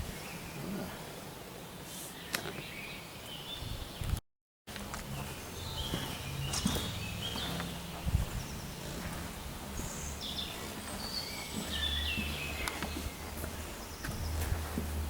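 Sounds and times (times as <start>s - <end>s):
steady low rumble: 4.7s - 15.0s
birds chirping and singing: 5.1s - 15.0s.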